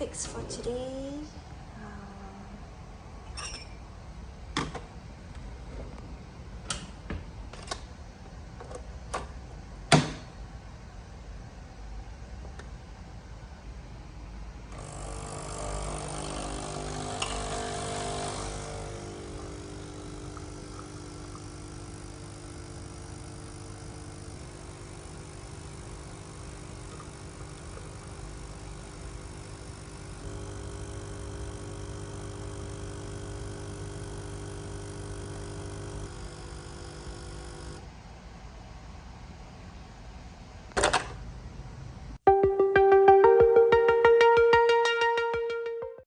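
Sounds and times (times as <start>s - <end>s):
coffee machine humming: 14.7s - 37.9s.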